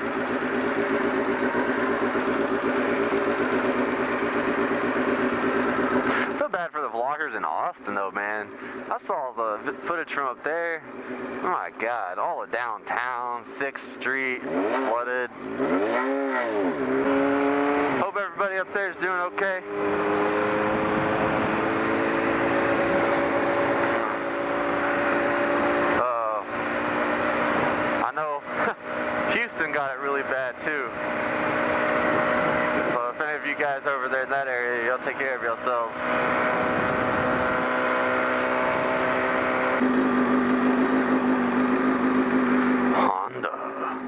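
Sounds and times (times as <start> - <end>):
motorcycle engine cruising: 0.0 - 44.0
wind noise: 36.5 - 37.8.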